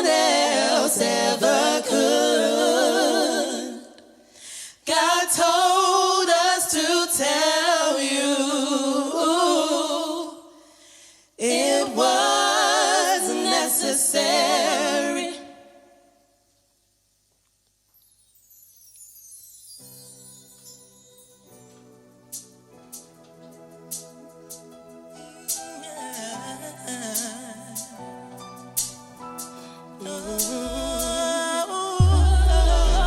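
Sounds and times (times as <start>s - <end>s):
choir singing a cappella: 0.0s - 10.7s, 11.4s - 16.2s, 24.0s - 28.8s, 29.4s - 33.0s.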